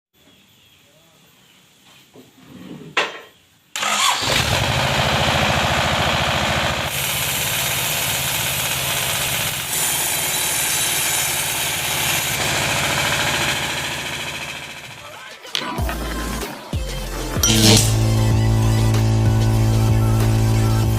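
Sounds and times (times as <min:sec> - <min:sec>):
sawmill engine running: 0:03.8 - 0:15.1, 0:17.4 - 0:20.9.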